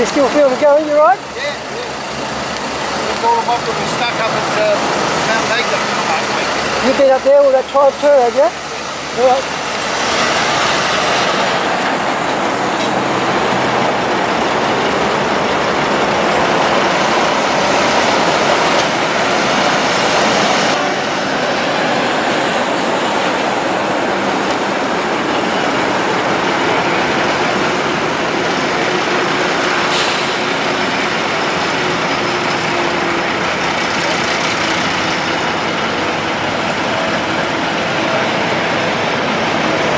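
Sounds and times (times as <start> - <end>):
heavy trucks passing: 0.0 - 39.9.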